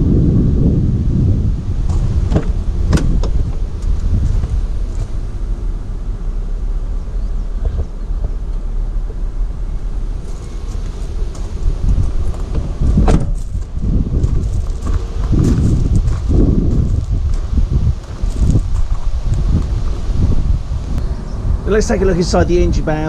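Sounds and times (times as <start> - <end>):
wind buffeting microphone: 0.0 - 23.0
sharp clicks and knocks: 1.9 - 5.1.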